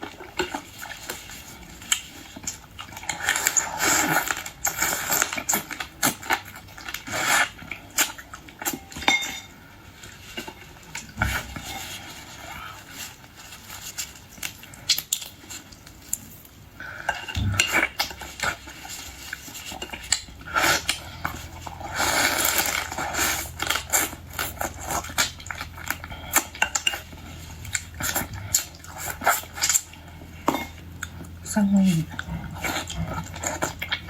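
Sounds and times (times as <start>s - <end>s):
low steady hum: 0.0s - 34.0s
cutlery and dishes clinking: 8.6s - 9.6s, 17.0s - 18.8s
scraping and rustling: 9.2s - 16.4s, 17.1s - 34.0s.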